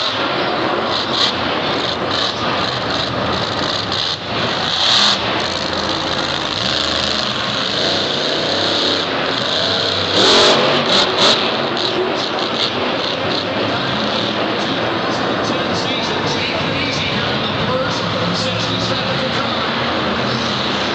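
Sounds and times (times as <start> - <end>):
arena crowd din: 0.0 - 20.9
truck engine revving hard: 0.0 - 20.9.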